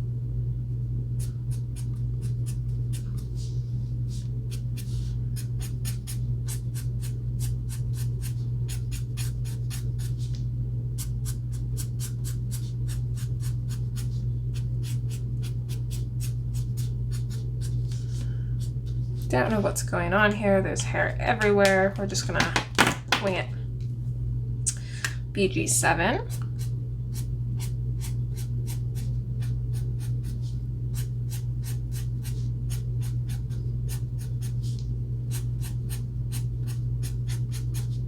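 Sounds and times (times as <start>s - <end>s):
steady low hum: 0.0s - 38.0s
marker stroking on paper: 1.2s - 6.2s.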